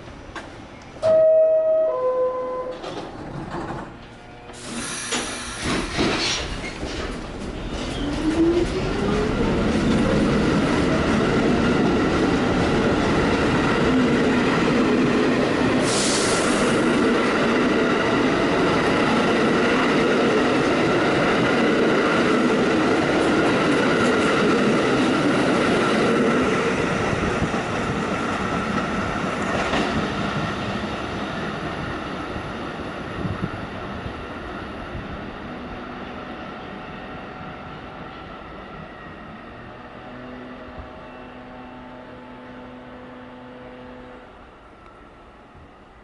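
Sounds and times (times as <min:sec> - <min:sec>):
subway train running: 0:00.0 - 0:46.0
rail clacks: 0:02.6 - 0:32.3.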